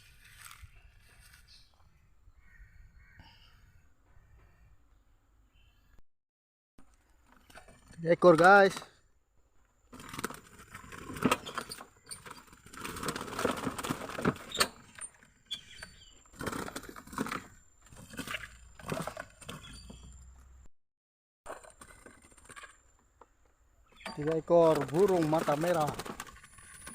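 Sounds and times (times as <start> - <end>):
rustling and clattering handling noise: 9.7 - 20.6, 21.5 - 26.9.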